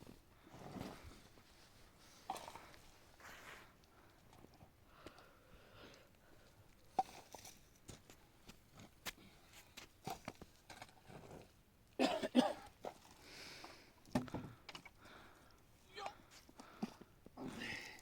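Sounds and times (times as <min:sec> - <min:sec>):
person coughing: 0:12.0 - 0:12.7.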